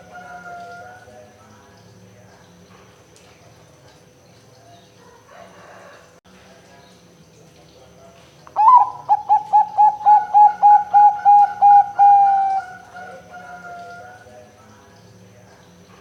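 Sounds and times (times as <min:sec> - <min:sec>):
dove cooing: 0:08.6 - 0:14.3.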